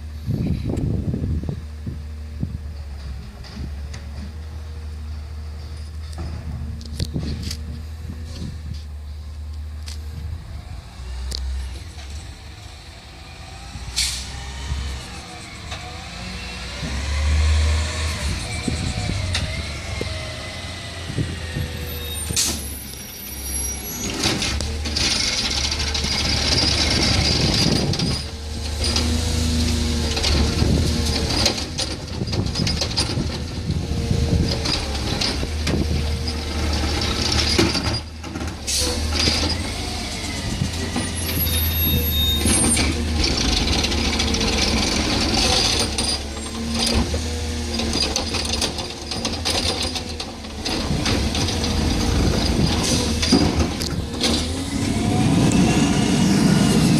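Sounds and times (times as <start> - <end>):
garbage truck engine rumbling: 0.0 - 56.9
knocks and clanks: 47.8 - 54.9.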